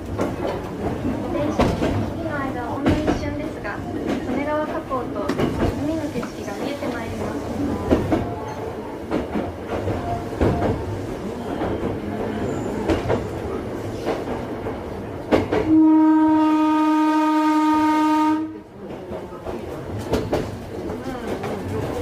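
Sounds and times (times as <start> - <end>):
train wheels clicking over rail joints: 0.0 - 15.7, 18.9 - 22.0
train horn: 15.6 - 18.7.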